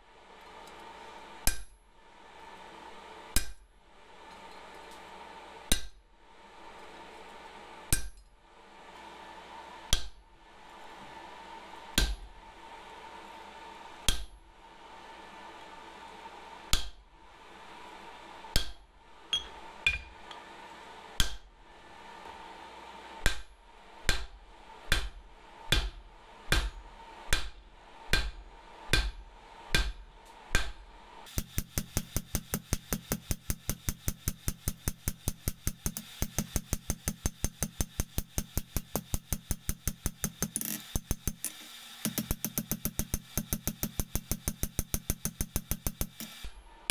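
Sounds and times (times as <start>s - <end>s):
hammer striking hot steel on anvil: 1.4s - 1.8s, 3.4s - 3.6s, 5.7s - 6.0s, 7.9s - 8.2s, 12.0s - 12.3s, 18.6s - 20.1s, 21.2s - 21.4s, 23.2s - 24.3s, 24.9s - 46.9s.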